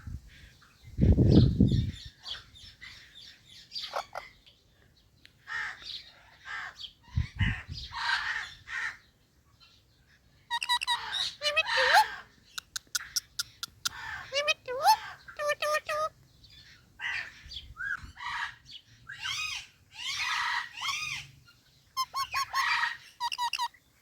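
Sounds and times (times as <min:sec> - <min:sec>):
parrots chirping and squawking: 0:03.8 - 0:04.4, 0:10.5 - 0:16.1, 0:16.7 - 0:21.4, 0:22.0 - 0:23.8.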